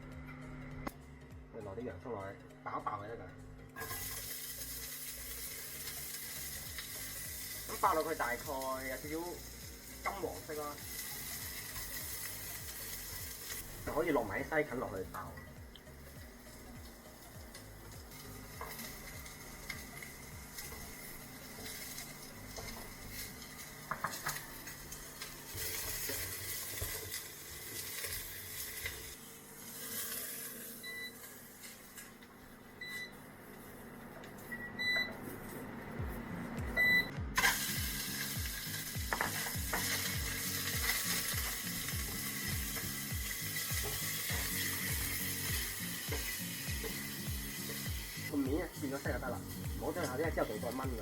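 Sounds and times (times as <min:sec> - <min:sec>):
vegetables sizzling in oil: 0:03.8 - 0:35.6, 0:36.8 - 0:51.0.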